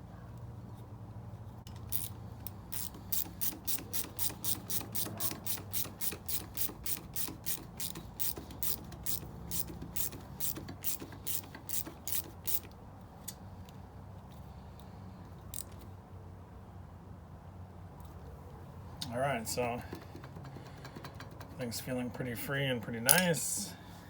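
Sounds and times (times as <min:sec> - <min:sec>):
mechanical clicking: 0:01.7 - 0:12.8.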